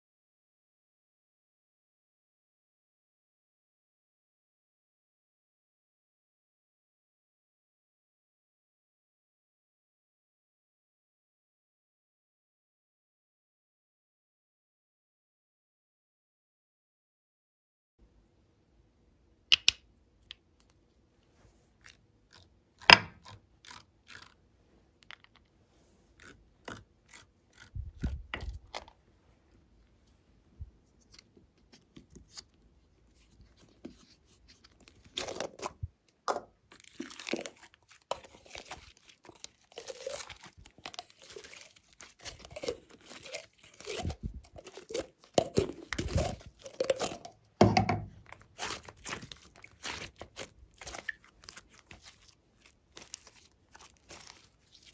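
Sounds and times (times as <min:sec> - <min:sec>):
clicks and taps: 0:19.5 - 0:20.4
slime crackling and popping: 0:36.7 - 0:47.4, 0:48.2 - 0:54.9.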